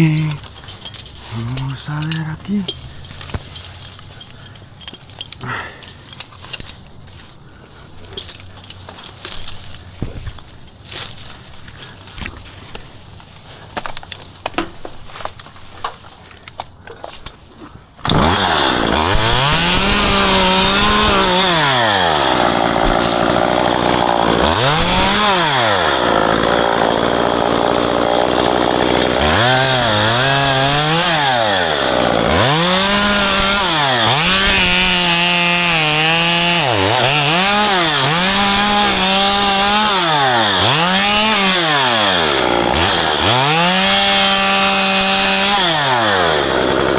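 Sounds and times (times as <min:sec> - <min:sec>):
chainsaw revving: 0:18.0 - 0:46.9.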